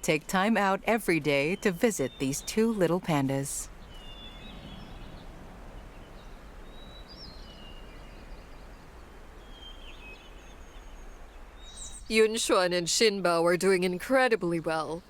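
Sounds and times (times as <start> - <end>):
steady background hiss: 0.0 - 15.0
faint bird chirps: 3.7 - 12.2.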